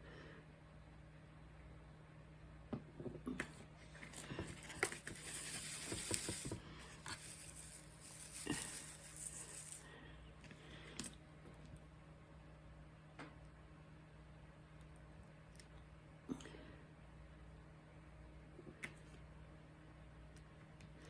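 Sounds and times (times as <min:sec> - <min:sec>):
rustling: 0:03.8 - 0:09.9.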